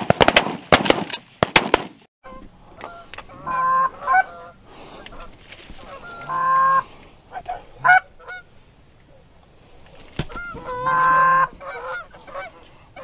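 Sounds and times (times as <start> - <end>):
shotgun shots: 0.0 - 2.1
geese honking: 2.2 - 8.6, 10.2 - 13.0.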